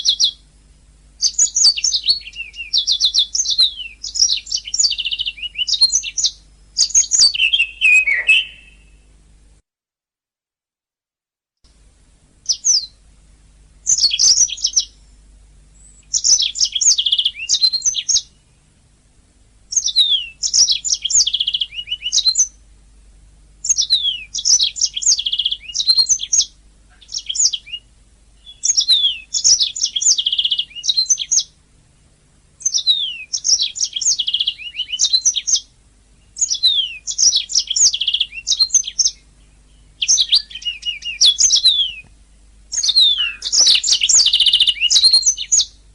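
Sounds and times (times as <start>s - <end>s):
canary singing: 0.0s - 0.4s, 1.2s - 9.0s, 12.4s - 13.0s, 13.8s - 15.0s, 15.8s - 18.6s, 19.7s - 22.6s, 23.6s - 31.6s, 32.6s - 45.8s
faint low hum: 0.0s - 9.6s, 11.7s - 45.9s.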